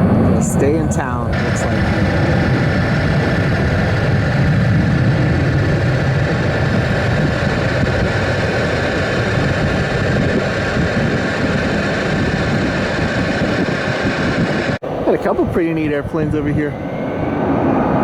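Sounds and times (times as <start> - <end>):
high-pitched whine: 0.0 - 18.0
loud engine rumble: 0.0 - 18.0.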